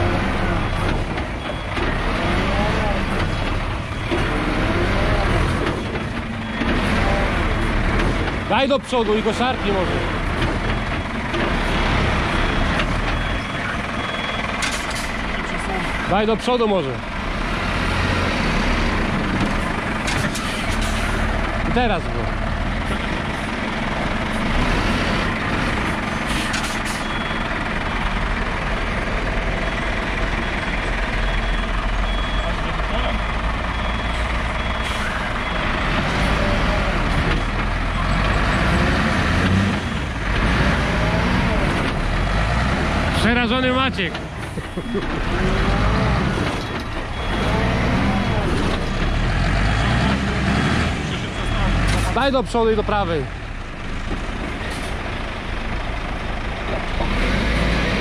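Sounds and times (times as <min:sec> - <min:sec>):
vehicle engine rumbling under load: 0:00.0 - 0:58.0
car engine revving: 0:38.0 - 0:43.9.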